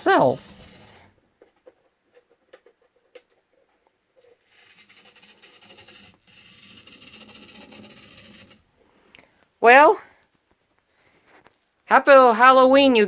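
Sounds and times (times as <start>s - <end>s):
model train motor whirring: 0.0s - 1.1s, 4.2s - 8.7s.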